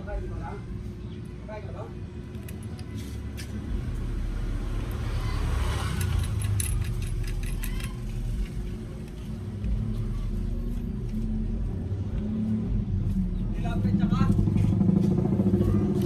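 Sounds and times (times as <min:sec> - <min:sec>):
vehicle engine rumbling: 0:00.0 - 0:16.0
light clicks and clinks: 0:05.9 - 0:09.2.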